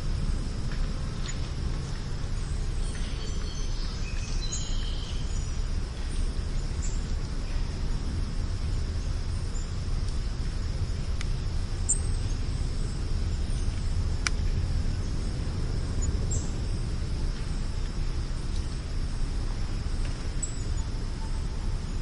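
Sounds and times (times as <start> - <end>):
steady low rumble: 0.0 - 22.0
faint bird chirps: 2.4 - 7.7, 11.8 - 13.9, 20.4 - 22.0.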